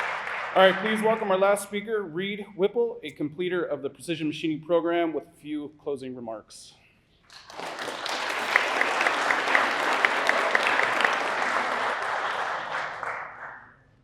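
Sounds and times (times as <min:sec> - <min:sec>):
audience applauding: 0:00.0 - 0:01.4, 0:07.3 - 0:13.7.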